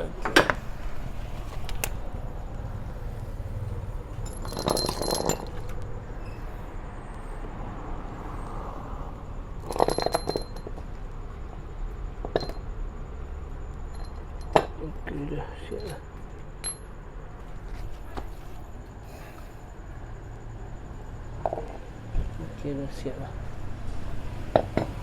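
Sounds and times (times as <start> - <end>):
metal tools clinking: 4.0 - 6.4, 9.6 - 11.0, 12.2 - 12.7, 13.8 - 17.0.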